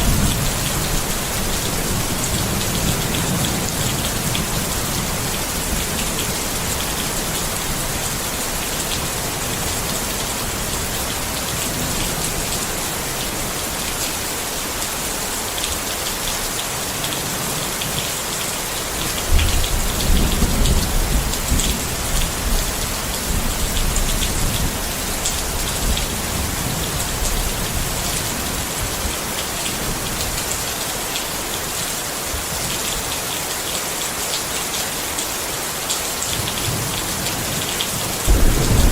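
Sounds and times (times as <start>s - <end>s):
rain on a tent: 0.0s - 38.9s
thunder rumble: 38.3s - 38.9s.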